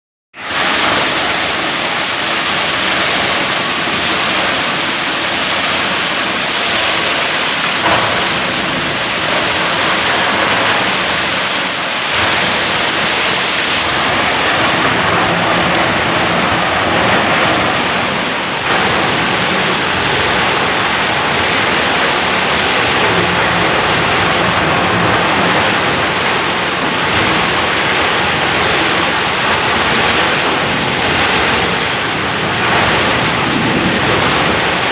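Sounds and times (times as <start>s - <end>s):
plastic grinder running: 0.5s - 34.9s
sharp knocks: 7.6s - 26.4s.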